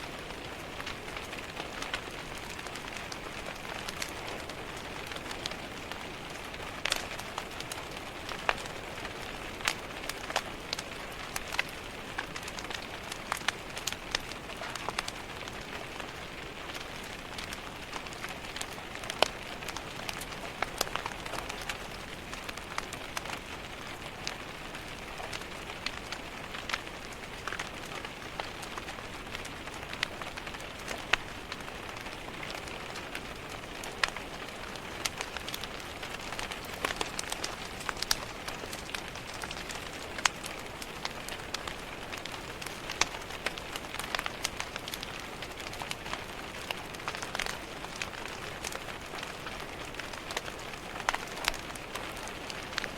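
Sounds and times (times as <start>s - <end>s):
wood fire crackling: 0.0s - 52.9s
rain tapping on window glass: 0.1s - 52.9s.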